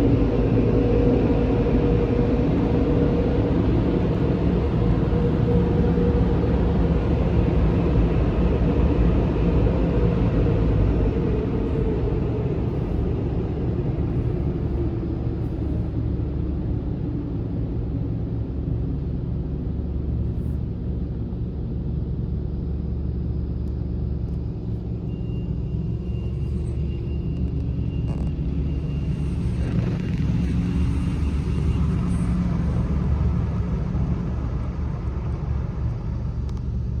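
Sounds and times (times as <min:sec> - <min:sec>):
car wash rumble: 0:25.7 - 0:37.0.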